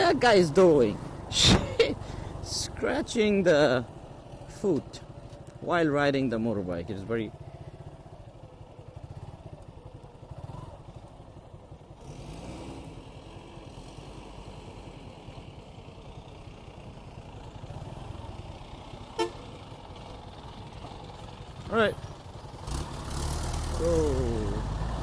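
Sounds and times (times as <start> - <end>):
motorcycle engine running: 6.3 - 13.7, 15.0 - 22.7.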